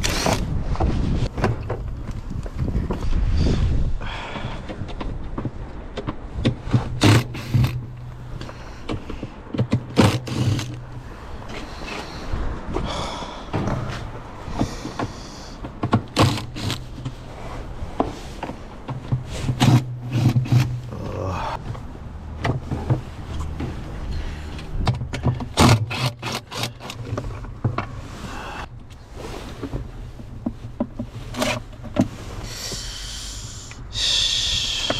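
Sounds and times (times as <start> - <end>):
plastic and metal parts knocking: 4.7 - 11.0, 14.6 - 17.2, 18.4 - 20.8.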